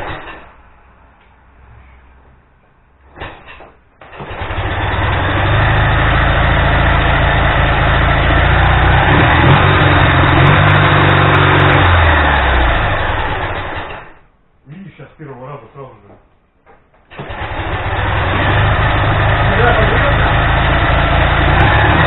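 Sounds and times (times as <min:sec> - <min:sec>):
engine starting clatter: 0:03.2 - 0:05.9, 0:11.8 - 0:14.2, 0:17.1 - 0:20.1
motorcycle engine running: 0:04.2 - 0:14.0, 0:17.2 - 0:22.0.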